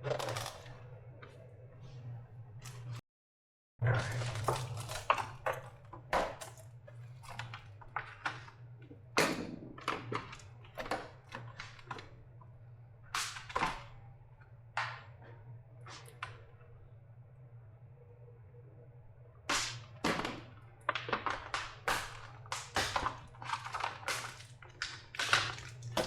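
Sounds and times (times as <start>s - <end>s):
low steady hum: 3.8s - 26.0s
plastic clicks and cracks: 19.7s - 26.0s.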